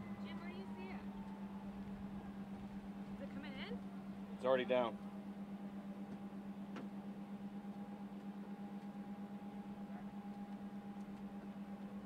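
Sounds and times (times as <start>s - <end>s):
low pulsing hum: 0.0s - 12.0s.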